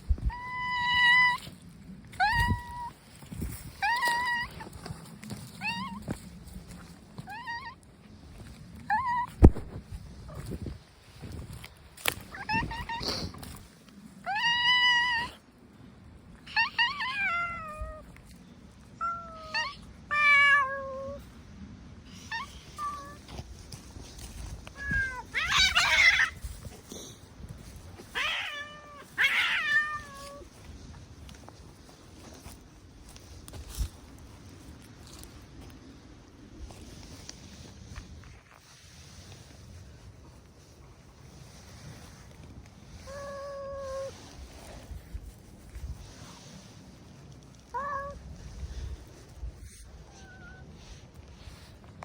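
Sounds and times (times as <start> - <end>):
cat meowing: 28.1 - 30.5.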